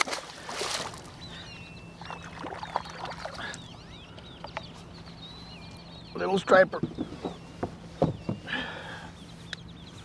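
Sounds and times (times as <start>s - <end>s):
small birds chirping: 0.4s - 10.0s
knocks against kayak hull: 6.8s - 8.5s.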